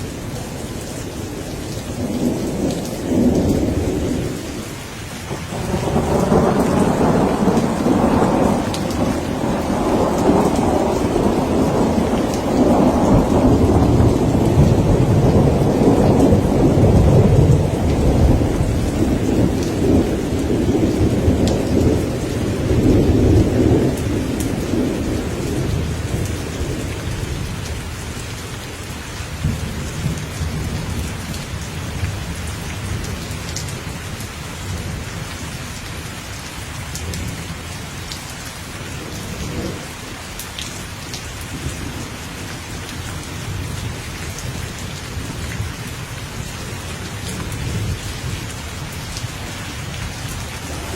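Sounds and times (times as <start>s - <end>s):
steady rain: 0.0s - 50.9s
thunder rumbling: 5.3s - 27.8s, 39.0s - 39.9s, 43.2s - 50.9s.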